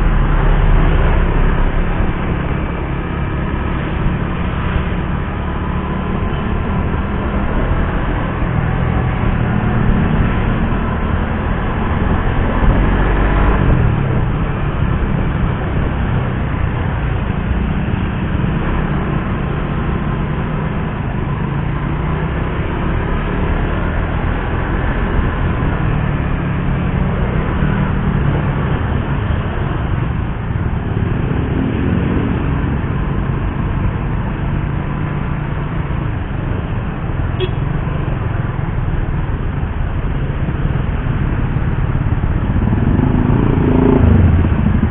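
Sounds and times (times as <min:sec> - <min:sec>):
wind and road noise: 0:00.0 - 0:44.9
motorcycle engine revving: 0:40.3 - 0:44.9.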